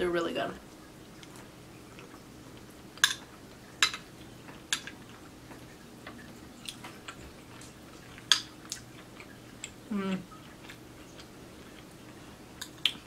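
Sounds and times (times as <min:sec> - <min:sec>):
chewing with wet mouth clicks: 0:04.2 - 0:13.0.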